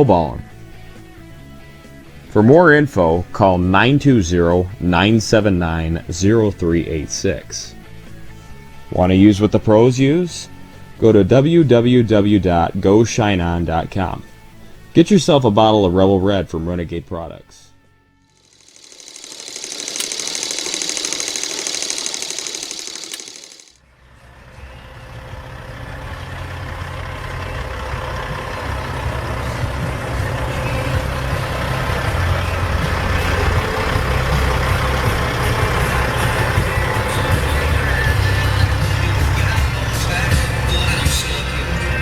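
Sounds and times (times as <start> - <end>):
hissing fast rattling: 18.4 - 23.8
truck diesel engine rumbling: 18.6 - 42.0.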